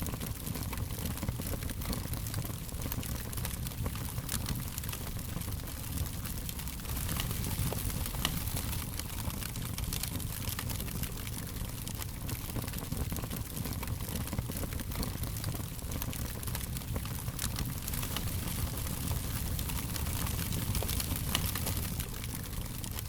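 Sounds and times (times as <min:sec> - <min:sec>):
fire crackling and popping: 0:00.0 - 0:23.0.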